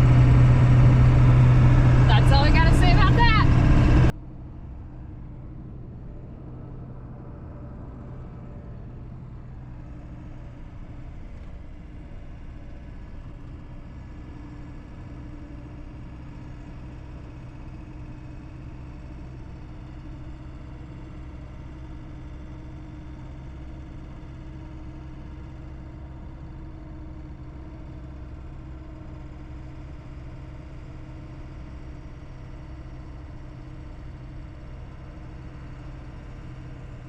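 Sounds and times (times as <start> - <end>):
road noise: 0.0 - 29.4
truck engine hum: 0.0 - 37.0.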